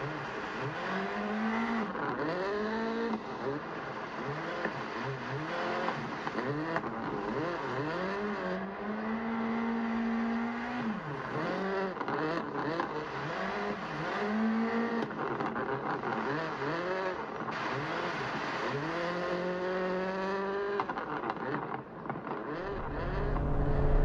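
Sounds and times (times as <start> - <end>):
car engine revving: 22.5 - 24.0.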